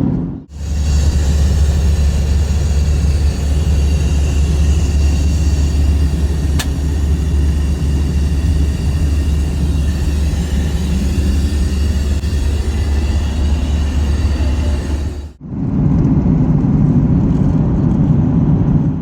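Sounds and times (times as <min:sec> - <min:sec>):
jet engine rumble: 0:00.0 - 0:19.0
faint whine: 0:00.5 - 0:15.6
sharp click: 0:06.5 - 0:07.1.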